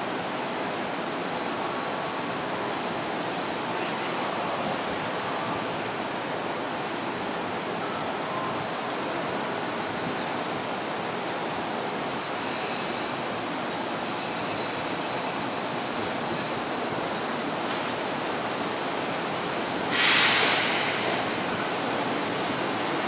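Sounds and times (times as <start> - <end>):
train rolling noise: 0.0 - 23.0
brief high hiss: 19.9 - 22.6.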